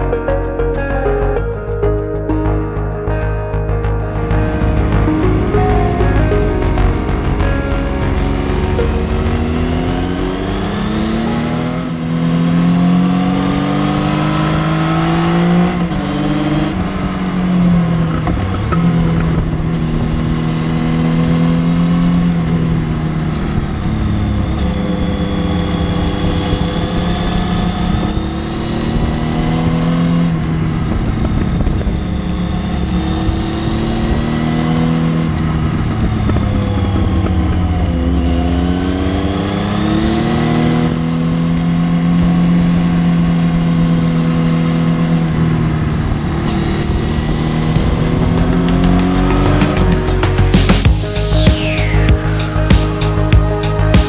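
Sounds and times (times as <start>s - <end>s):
motorcycle engine running: 3.8s - 52.7s.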